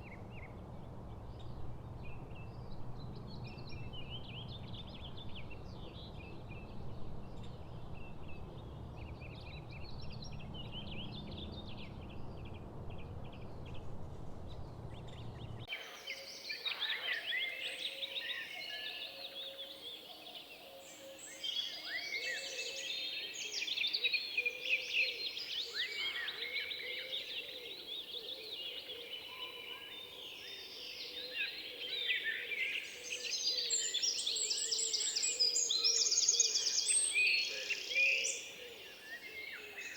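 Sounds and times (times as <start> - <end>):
low steady rumble: 0.0 - 15.7
songbirds singing: 0.0 - 39.9
chorus of many birds calling: 14.9 - 39.9.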